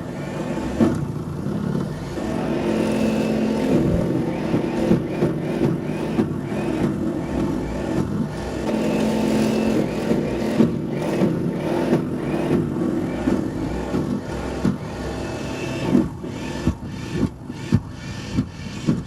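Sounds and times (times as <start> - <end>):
snowblower engine running: 0.0 - 18.8.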